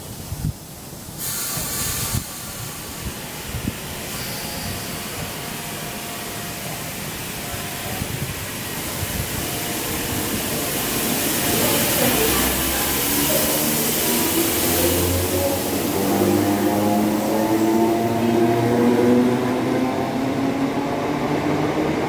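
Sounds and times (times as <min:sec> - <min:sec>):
train rolling noise: 0:00.8 - 0:22.0
air hiss burst: 0:01.0 - 0:05.5.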